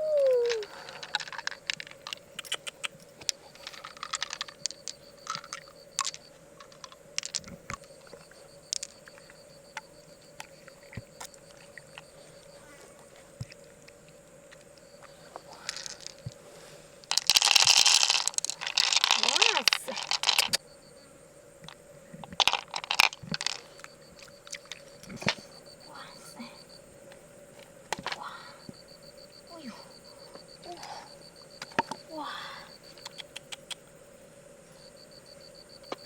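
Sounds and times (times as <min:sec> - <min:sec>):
mussel shells clicking: 0:00.4 - 0:10.6, 0:17.1 - 0:20.6, 0:22.4 - 0:24.8.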